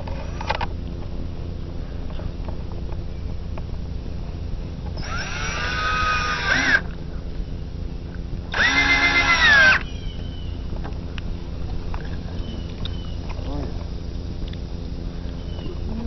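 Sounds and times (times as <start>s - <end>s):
power drill driving screws: 5.0s - 6.8s, 8.5s - 9.8s.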